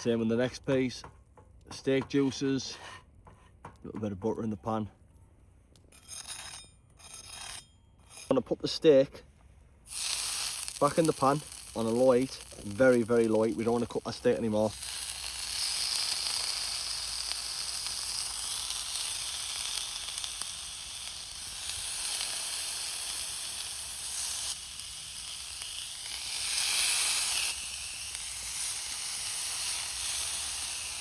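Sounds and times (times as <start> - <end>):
steak sizzling in a frying pan: 9.9 - 14.0, 14.7 - 31.0.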